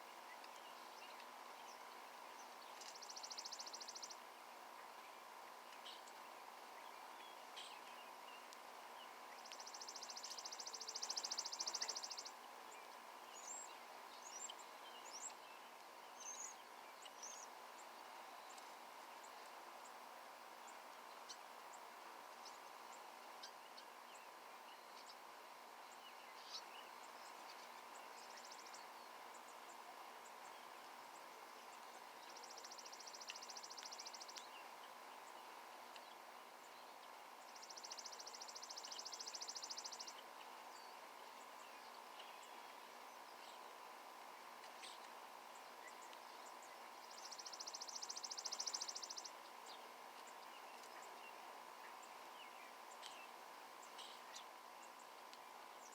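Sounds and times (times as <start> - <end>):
songbird rapid high trill: 2.8 - 4.2, 9.3 - 12.4, 32.4 - 34.3, 37.5 - 40.2, 45.6 - 49.8.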